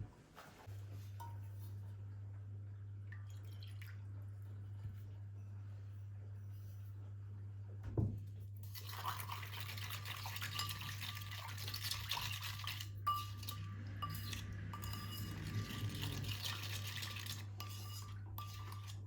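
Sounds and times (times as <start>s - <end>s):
utensil scraping a bowl: 9.9s - 19.0s.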